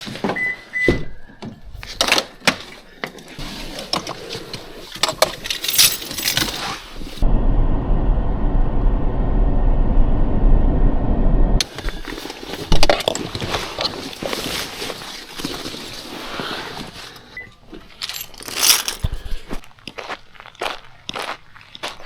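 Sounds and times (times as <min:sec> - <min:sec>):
metallic jingling and clinking: 0:05.0 - 0:06.8, 0:17.9 - 0:19.2
low rumble: 0:07.2 - 0:11.6.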